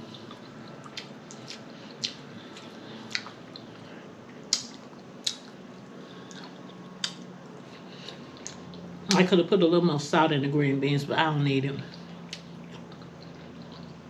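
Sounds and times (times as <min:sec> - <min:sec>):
wet chewing: 0:00.0 - 0:08.9, 0:11.9 - 0:14.0
sharp lip smacks: 0:01.0 - 0:03.4, 0:04.5 - 0:05.6, 0:07.0 - 0:07.3.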